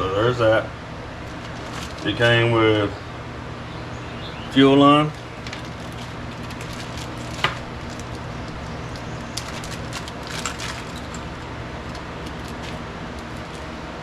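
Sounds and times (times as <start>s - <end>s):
steady low hum: 0.0s - 14.0s
small parts clicking and rustling: 1.2s - 2.3s, 5.4s - 14.0s.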